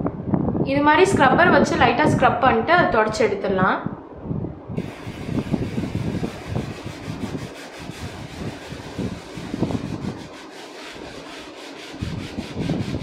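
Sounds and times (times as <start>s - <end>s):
scrubber rubbing on pan: 4.8s - 13.0s.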